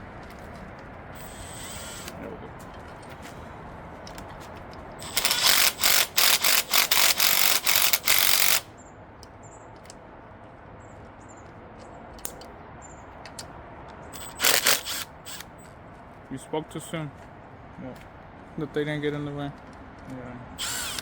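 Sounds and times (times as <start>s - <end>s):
impact gun driving a bolt: 5.0s - 8.7s, 14.2s - 15.5s, 20.6s - 21.0s.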